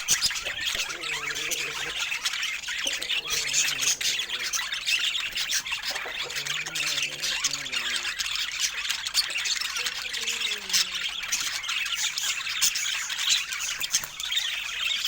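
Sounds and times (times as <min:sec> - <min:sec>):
budgerigars chirping and squawking: 0:00.0 - 0:15.0.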